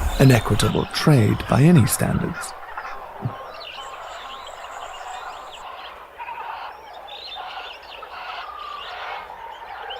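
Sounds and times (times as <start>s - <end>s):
high-pitched whine: 0.0s - 2.6s
birds chirping and whistling: 0.0s - 5.6s.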